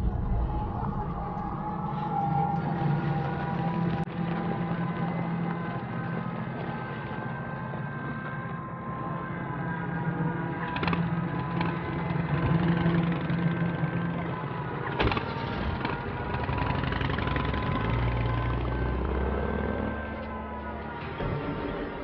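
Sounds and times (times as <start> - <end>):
car engine running: 9.3 - 22.0.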